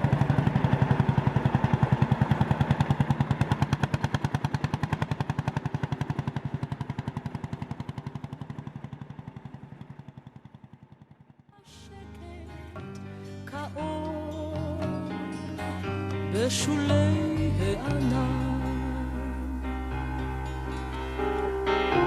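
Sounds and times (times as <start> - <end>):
tractor engine running: 0.0 - 11.5
music: 11.6 - 22.0.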